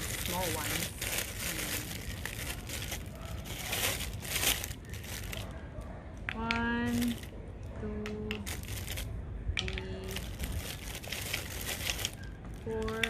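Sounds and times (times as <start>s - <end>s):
plastic crinkling and rustling: 0.0s - 5.6s, 8.3s - 13.0s.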